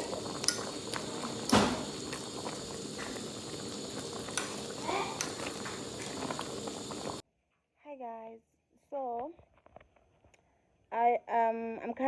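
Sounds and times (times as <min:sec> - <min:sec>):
food bubbling and sizzling in pot: 0:00.0 - 0:07.2.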